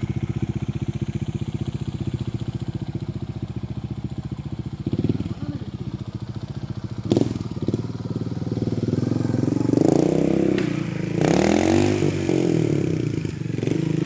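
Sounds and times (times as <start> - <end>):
motorcycle engine revving: 0.0 - 14.0
sharp clack: 10.5 - 11.0.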